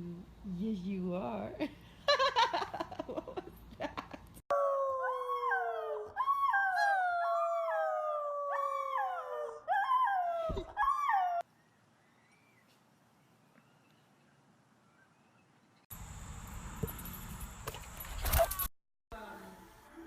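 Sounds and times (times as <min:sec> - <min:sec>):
dog howling in rising notes: 0:04.5 - 0:11.4
dog long falling howl: 0:04.5 - 0:11.4.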